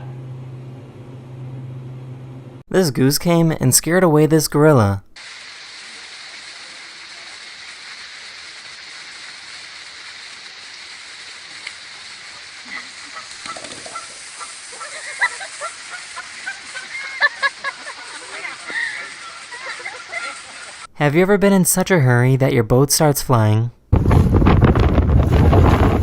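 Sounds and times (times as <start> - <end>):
steady background hiss: 4.8 - 21.0
goose honking: 12.6 - 15.1.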